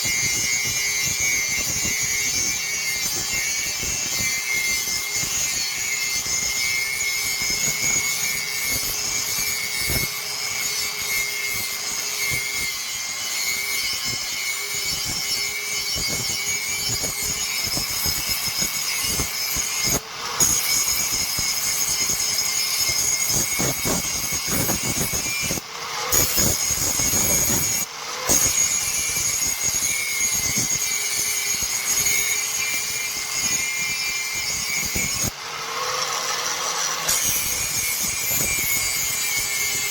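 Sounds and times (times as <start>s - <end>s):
power grinder grinding steel: 0.0s - 39.9s.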